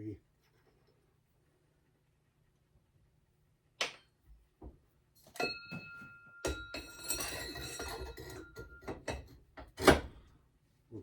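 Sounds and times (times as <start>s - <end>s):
metal ringing bell-like tone: 5.4s - 9.0s.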